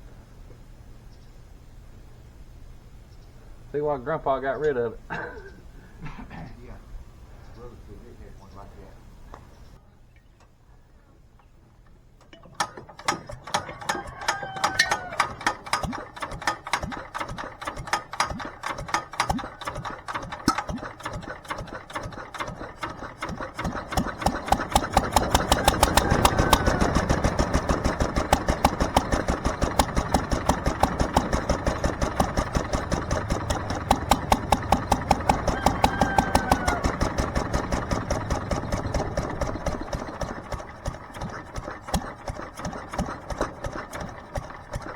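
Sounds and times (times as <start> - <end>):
single-cylinder engine running: 12.2 - 44.9.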